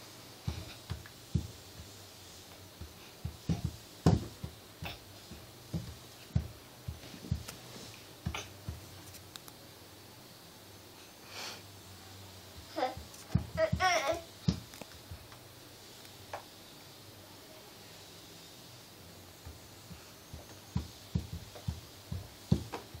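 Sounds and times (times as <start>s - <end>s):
soft knocks and thumps: 0.4s - 2.1s, 2.8s - 9.0s, 13.0s - 15.3s, 19.4s - 23.0s.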